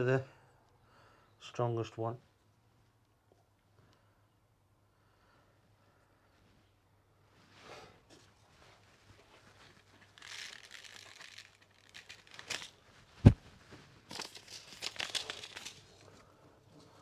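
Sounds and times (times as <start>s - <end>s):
packaging rustling: 9.9s - 13.4s, 14.1s - 16.2s.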